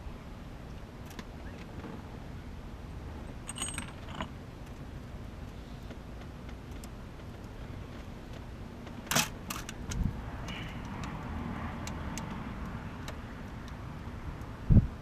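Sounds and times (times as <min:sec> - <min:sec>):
metal tools clinking: 0:03.3 - 0:04.3.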